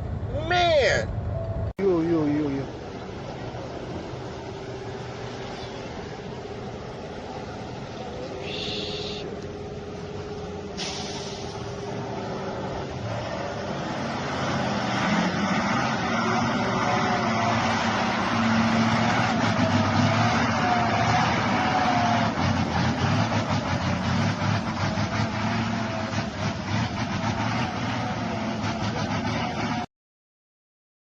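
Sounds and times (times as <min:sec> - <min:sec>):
heavy vehicle engine hum: 0:00.0 - 0:29.9
road noise: 0:00.0 - 0:29.9.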